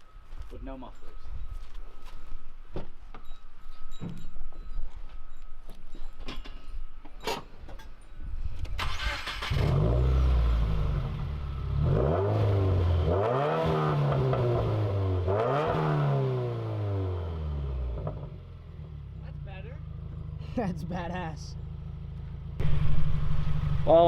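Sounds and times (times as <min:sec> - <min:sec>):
car engine starting and revving: 0:08.8 - 0:19.2.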